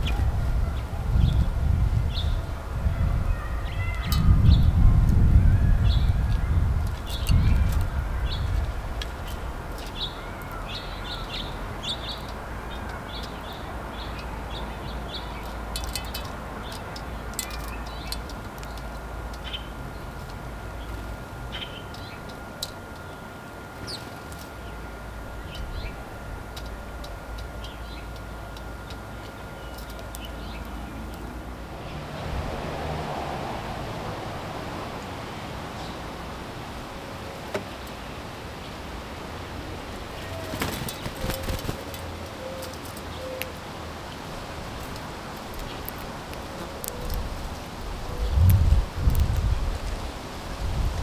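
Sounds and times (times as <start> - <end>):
low steady rumble: 0.0 - 10.2
songbirds chirping: 0.0 - 51.0
faint high whine: 18.8 - 32.1.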